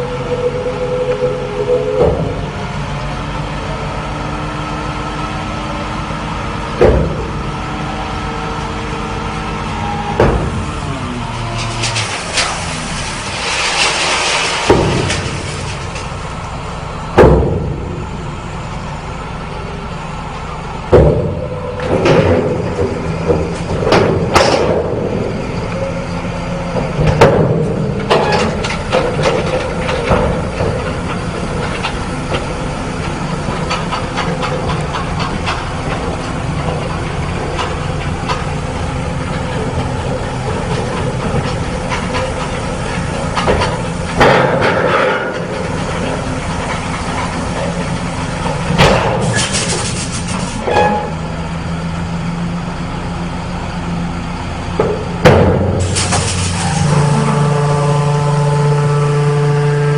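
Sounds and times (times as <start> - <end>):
truck engine running: 0.0 - 59.9
metal clanks and knocks: 6.8 - 7.4, 11.4 - 16.3, 20.9 - 25.3, 26.7 - 51.2, 54.8 - 57.4.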